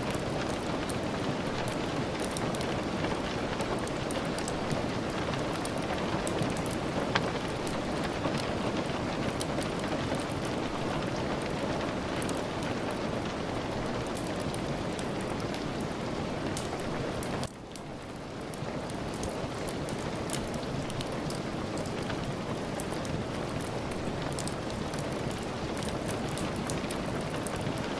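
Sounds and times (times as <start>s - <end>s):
steady rain: 0.0s - 27.9s
sharp ticks and crackles: 0.1s - 10.6s, 16.5s - 27.9s.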